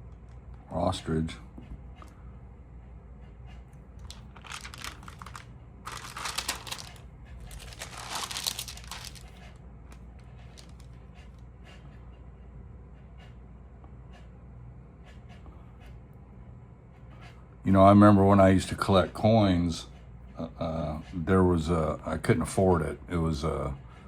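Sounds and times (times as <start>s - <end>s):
stamp pages crinkling and rustling: 4.0s - 9.4s.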